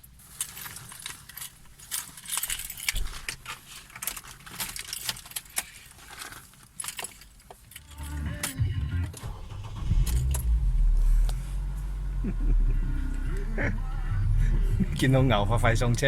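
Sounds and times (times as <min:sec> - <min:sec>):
keys jangling: 0:00.4 - 0:05.6
low rumble: 0:08.0 - 0:16.0.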